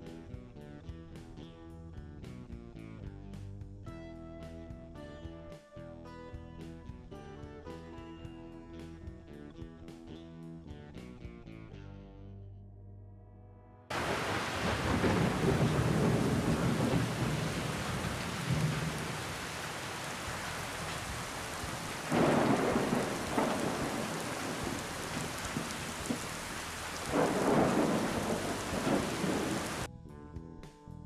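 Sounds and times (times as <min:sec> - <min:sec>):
heavy rain: 0:13.9 - 0:29.9
thunder rumbling: 0:13.9 - 0:29.9.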